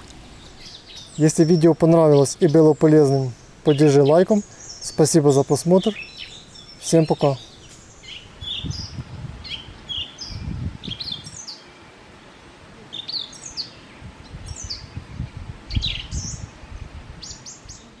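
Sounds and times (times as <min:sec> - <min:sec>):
small songbirds chirping: 0:00.0 - 0:18.0.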